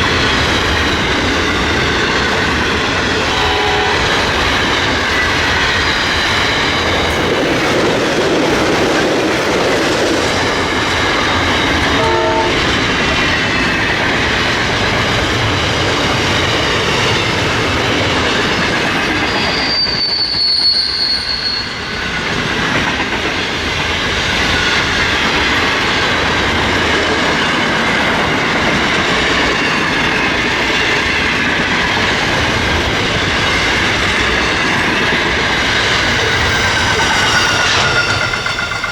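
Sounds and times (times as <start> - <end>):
train wheels rumbling on rails: 0.0 - 38.9
high wheel squeals: 2.9 - 6.0, 19.3 - 22.0, 35.7 - 38.9.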